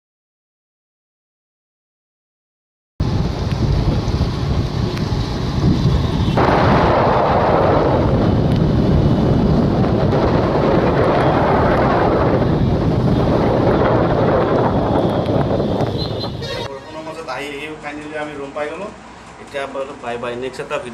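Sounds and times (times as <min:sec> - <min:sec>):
wind buffeting microphone: 0:03.0 - 0:16.7
road noise: 0:03.0 - 0:20.9.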